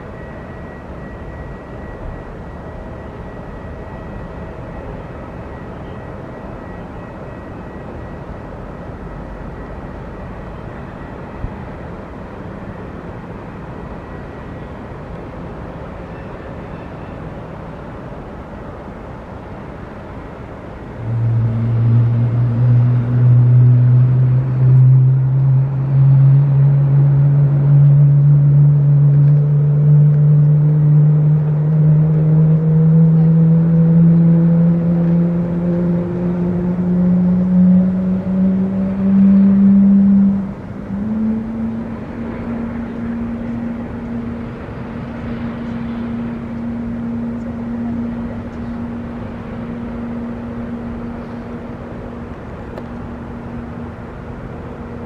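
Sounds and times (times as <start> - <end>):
jet engine starting hum: 0.0 - 55.0.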